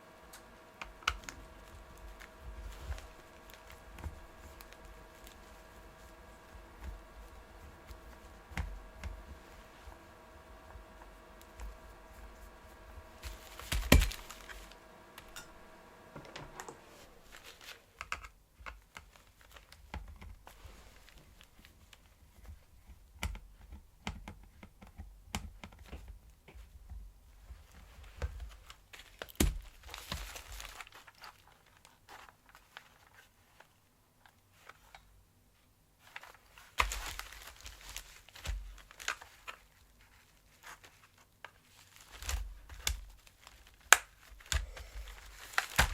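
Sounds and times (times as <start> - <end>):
steady hum: 0.0 - 18.1, 44.3 - 45.9
plastic parts clicking and tapping: 18.0 - 20.4, 22.4 - 27.0, 36.1 - 45.9.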